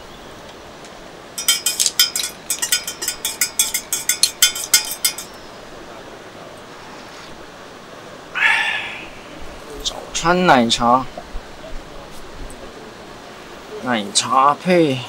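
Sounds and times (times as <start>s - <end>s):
spoon clinking against cup: 1.4s - 5.6s.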